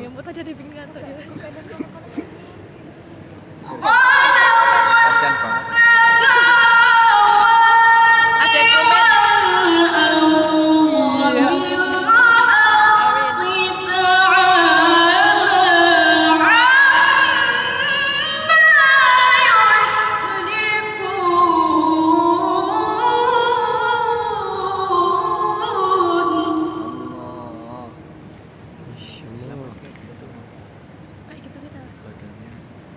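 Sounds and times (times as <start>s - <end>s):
woman reciting melodically: 3.6s - 27.2s.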